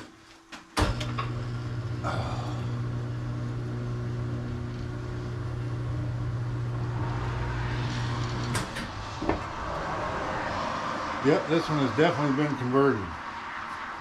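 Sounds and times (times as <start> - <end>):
electric motor humming: 0.8 - 9.6.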